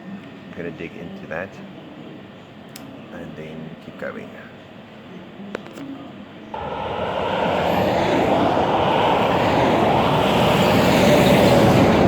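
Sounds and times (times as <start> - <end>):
road vehicle approaching: 6.6 - 12.0.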